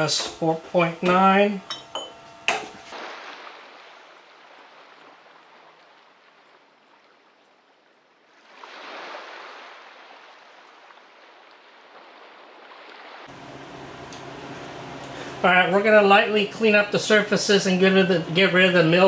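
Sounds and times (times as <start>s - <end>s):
gentle surf on sandy beach: 2.9s - 13.4s.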